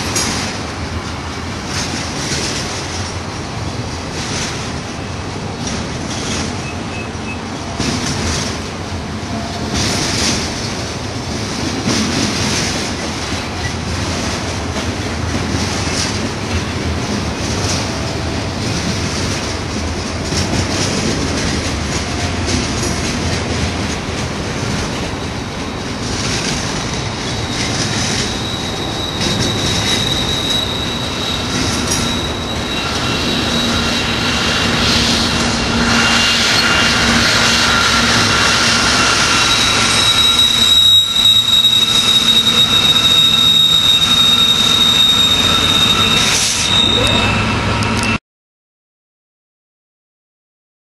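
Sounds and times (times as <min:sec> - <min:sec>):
train wheels rumbling and clattering: 0:00.0 - 0:48.2
high-pitched wheel squeal: 0:27.2 - 0:48.2.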